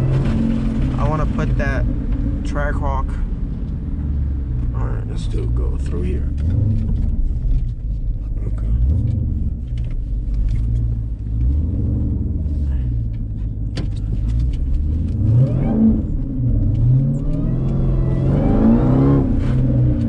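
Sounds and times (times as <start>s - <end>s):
engine revving: 0.0s - 3.3s, 3.9s - 7.3s, 10.6s - 13.2s, 14.0s - 20.0s.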